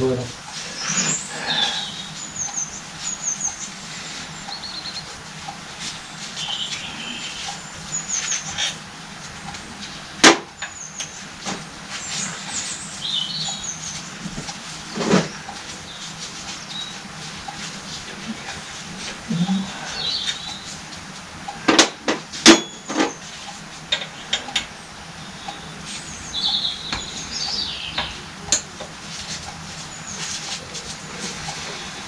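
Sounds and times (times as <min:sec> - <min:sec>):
small birds chirping: 0:00.6 - 0:11.3, 0:11.9 - 0:21.0, 0:25.2 - 0:28.4.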